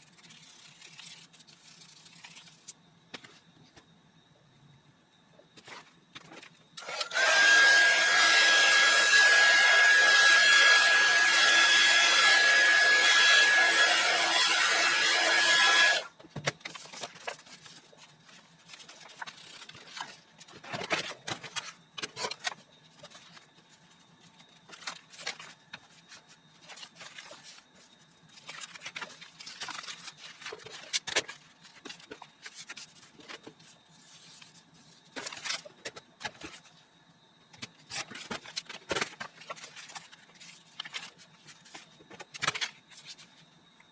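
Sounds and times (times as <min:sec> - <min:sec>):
electric blower whining: 0:06.8 - 0:16.1.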